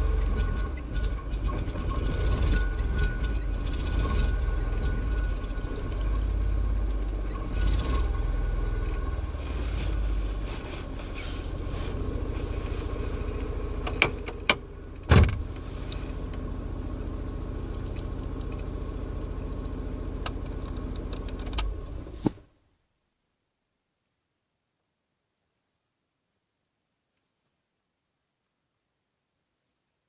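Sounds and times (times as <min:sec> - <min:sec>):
car engine running: 0:00.0 - 0:22.3.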